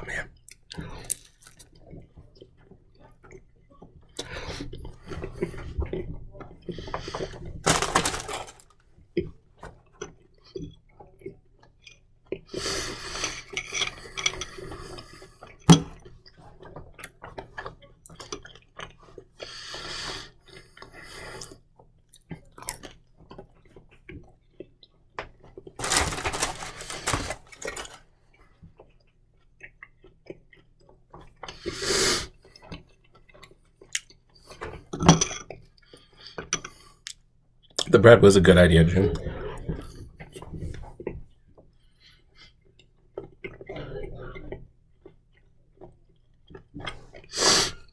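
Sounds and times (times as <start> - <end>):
chewing: 0.2 - 6.0, 28.7 - 34.8, 42.0 - 47.3
short noisy rustles: 25.8 - 28.0.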